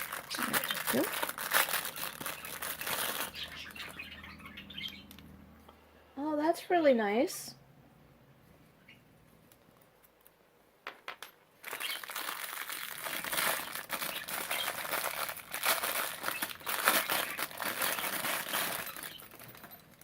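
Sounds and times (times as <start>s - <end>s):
plastic packaging crinkling: 0.0s - 4.1s, 11.6s - 20.0s.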